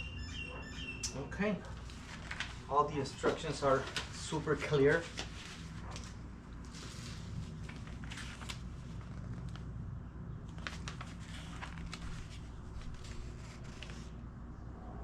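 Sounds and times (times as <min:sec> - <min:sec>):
packing paper rustling: 0:01.7 - 0:09.7, 0:10.5 - 0:14.2.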